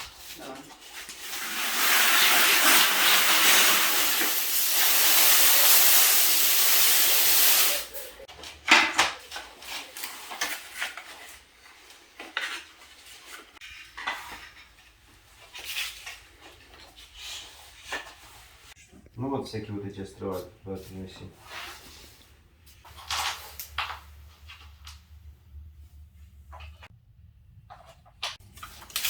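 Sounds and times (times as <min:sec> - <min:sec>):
loud steady hiss: 0:01.3 - 0:08.1.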